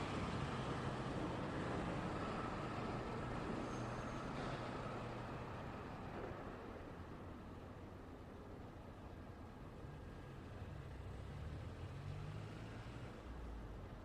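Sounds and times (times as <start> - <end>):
road traffic passing: 0.0 - 8.4, 9.0 - 14.0
faint high squeak: 3.6 - 4.7.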